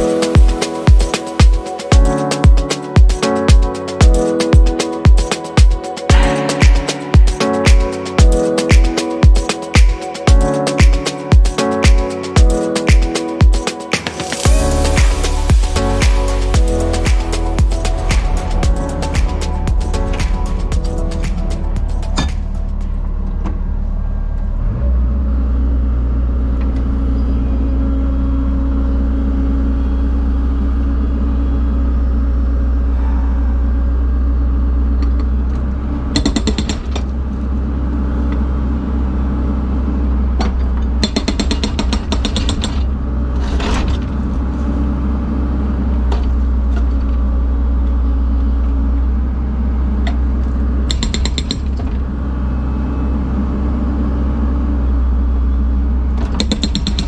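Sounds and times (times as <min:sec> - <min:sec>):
engine running: 0:14.0 - 0:42.2.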